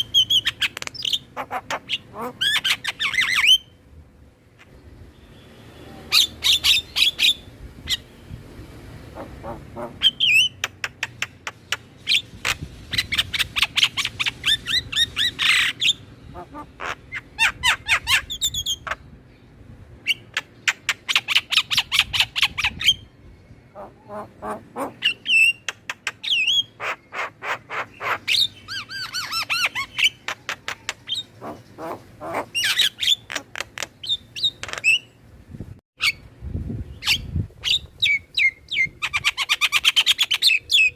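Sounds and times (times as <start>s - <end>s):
starlings singing: 4.6s - 35.2s.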